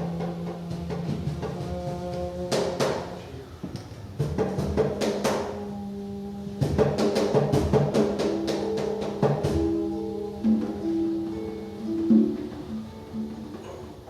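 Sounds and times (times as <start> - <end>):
congas struck in flurries: 6.6 - 11.2
plucked string instrument notes: 6.9 - 14.0.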